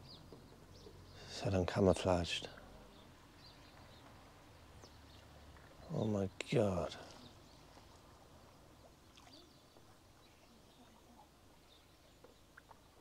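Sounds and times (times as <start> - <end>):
faint bird calls: 6.8 - 13.0.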